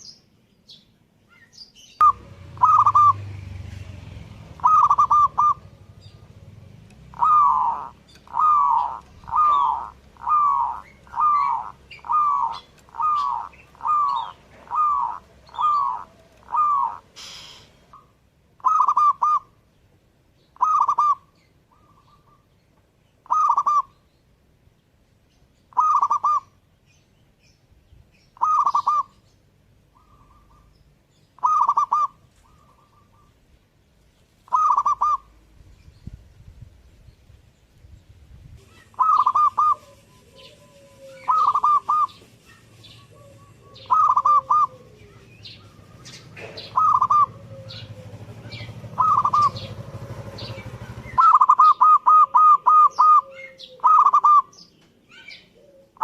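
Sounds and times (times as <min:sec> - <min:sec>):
dove cooing: 0:02.0 - 0:19.6, 0:20.6 - 0:22.4, 0:23.2 - 0:24.0, 0:25.7 - 0:26.6, 0:28.4 - 0:29.2, 0:29.9 - 0:30.7, 0:31.4 - 0:33.3, 0:34.5 - 0:35.4, 0:38.6 - 0:56.0.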